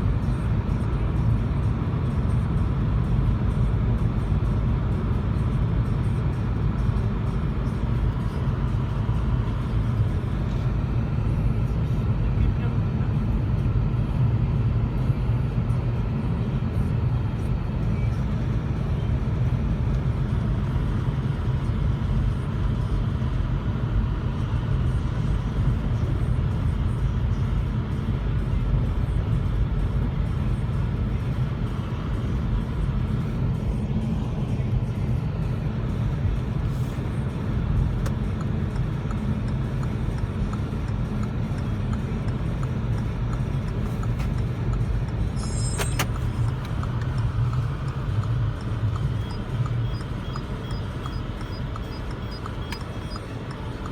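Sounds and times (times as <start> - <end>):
car engine rumble: 0.0 - 53.9
tyre road noise: 0.0 - 53.9.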